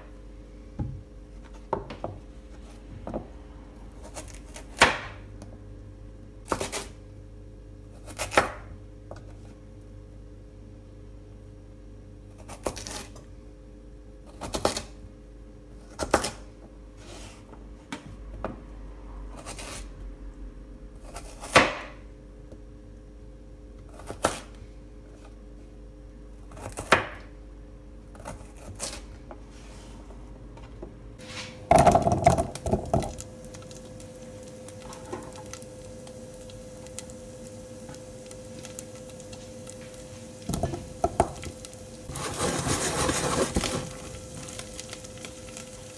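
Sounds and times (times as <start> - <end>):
steady hum: 27.4 - 45.9
objects being handled: 42.1 - 44.5.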